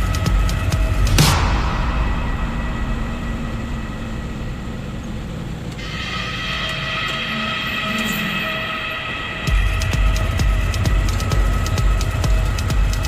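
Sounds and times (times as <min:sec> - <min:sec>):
steady high tones: 0:00.4 - 0:12.2
truck engine low rumble: 0:00.5 - 0:06.2.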